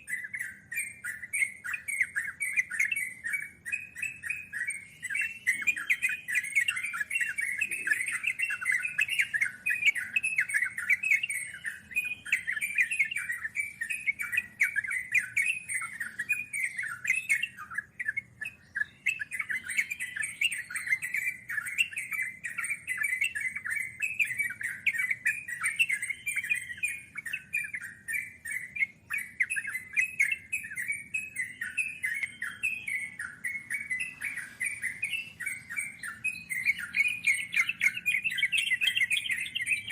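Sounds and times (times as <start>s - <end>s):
bulbul song chirping: 0.0s - 39.9s.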